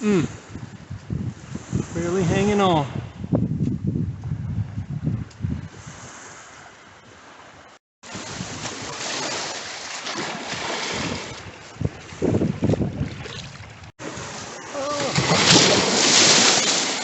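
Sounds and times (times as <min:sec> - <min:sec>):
wind buffeting microphone: 0:00.2 - 0:08.8, 0:10.9 - 0:14.4
ocean surf washing up: 0:05.8 - 0:12.8, 0:14.0 - 0:17.0.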